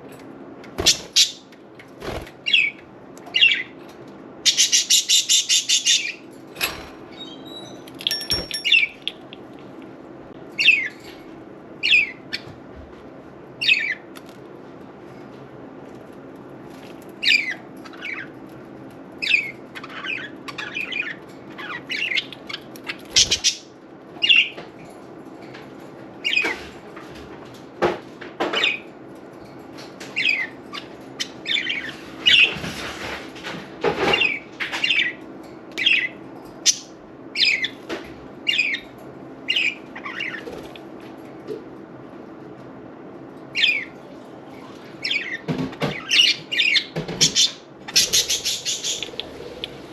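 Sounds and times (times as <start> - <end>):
steady low hum: 0.0 - 49.9
budgerigars chirping: 0.8 - 1.4, 4.5 - 6.2, 23.2 - 24.5, 46.0 - 49.9.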